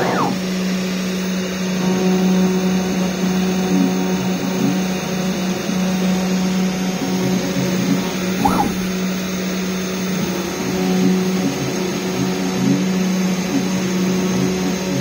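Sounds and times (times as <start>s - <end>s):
spindle motor whirring: 0.0s - 0.5s, 8.0s - 9.1s
high whistle: 8.4s - 9.0s.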